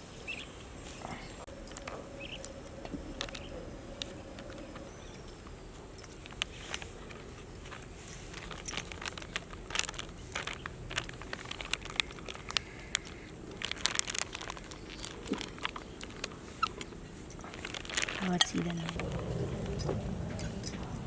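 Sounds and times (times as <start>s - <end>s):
dough mixed by hand in a bowl: 9.0s - 19.7s.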